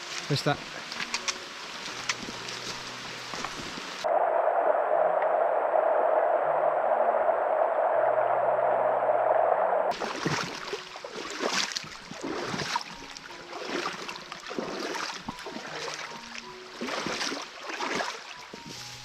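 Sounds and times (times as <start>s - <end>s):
faint background music: 0.0s - 4.0s, 10.0s - 19.0s
water splashing: 0.0s - 4.0s, 9.9s - 19.0s
river water rushing through rapid: 9.9s - 18.6s.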